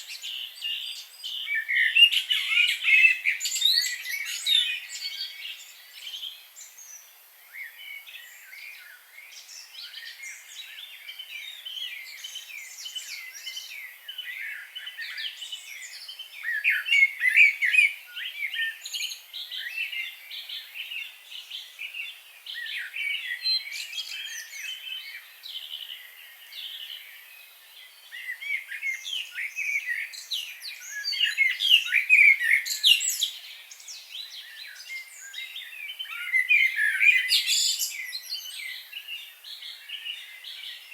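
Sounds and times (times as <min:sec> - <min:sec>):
birds singing and chirping: 0:00.0 - 0:40.9.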